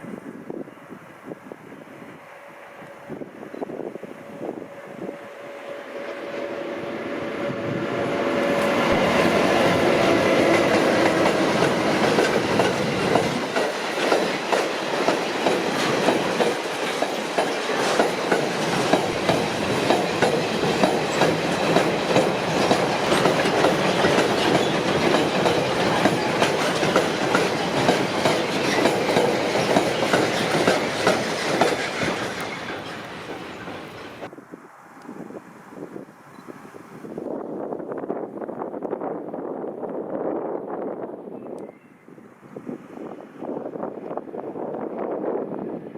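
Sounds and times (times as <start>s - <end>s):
train running past: 0.0s - 34.9s
wheels clacking over rail joints: 8.4s - 34.3s.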